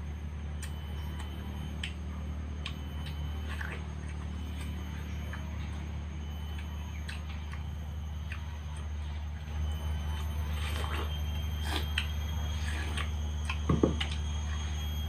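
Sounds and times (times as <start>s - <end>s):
steady low hum: 0.0s - 15.0s
watermelon being bitten and chewed: 0.0s - 15.0s.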